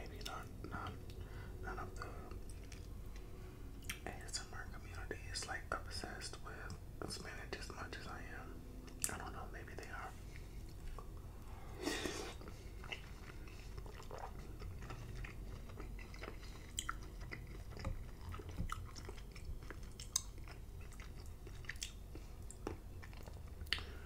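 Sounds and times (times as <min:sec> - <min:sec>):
chewing wet food: 0:02.0 - 0:04.1, 0:12.0 - 0:24.0
wet mouth clicks and smacks: 0:16.7 - 0:23.9.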